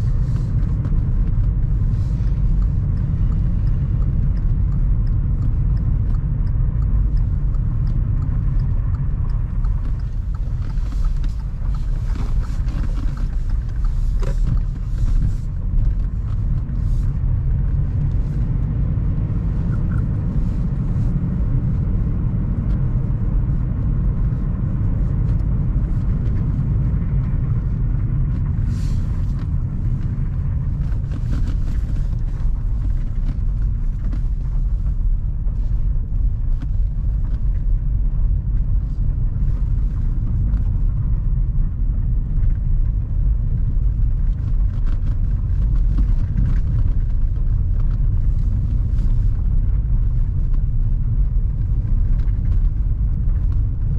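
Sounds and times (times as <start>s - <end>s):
car engine and tyre rumble: 0.0s - 53.9s.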